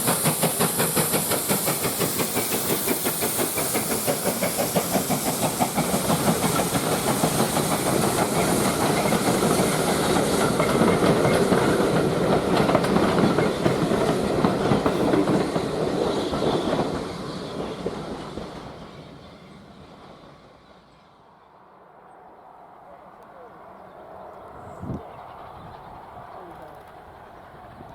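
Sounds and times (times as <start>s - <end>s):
steam train wheels clattering: 0.0s - 21.0s.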